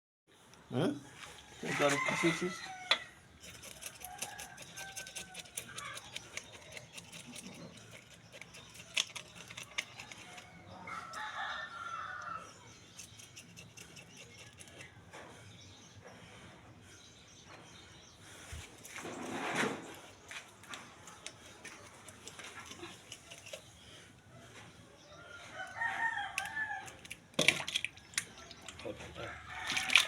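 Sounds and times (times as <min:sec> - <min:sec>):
rooster crowing: 0:01.2 - 0:03.2, 0:04.0 - 0:05.8, 0:10.3 - 0:12.5, 0:25.4 - 0:26.9, 0:29.2 - 0:30.0.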